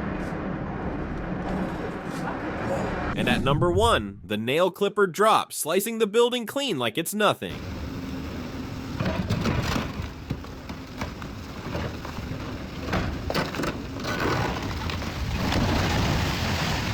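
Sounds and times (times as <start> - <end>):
falling debris rumbling: 7.5 - 16.9.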